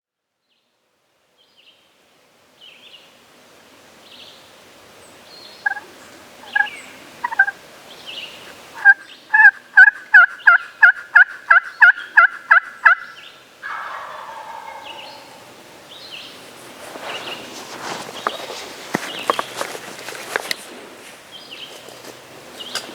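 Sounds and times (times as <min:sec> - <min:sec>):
turkey yelping: 0:05.6 - 0:07.6, 0:08.8 - 0:15.6
rustling: 0:16.2 - 0:22.9.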